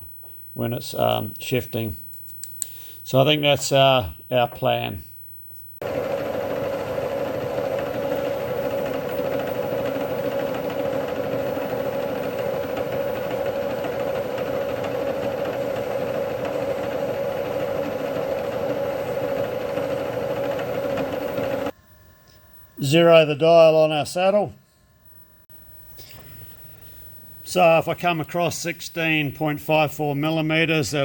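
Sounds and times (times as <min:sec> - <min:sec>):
electric motor humming: 0:05.8 - 0:21.7.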